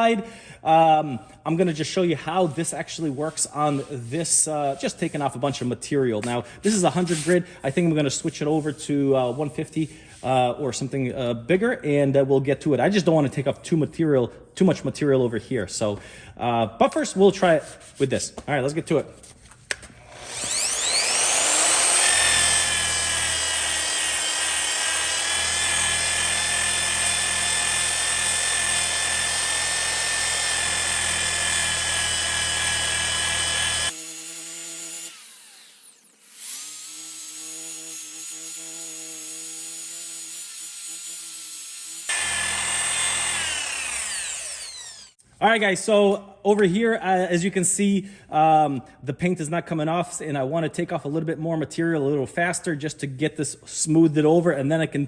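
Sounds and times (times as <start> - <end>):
electric grinder whining: 20.0 - 45.2.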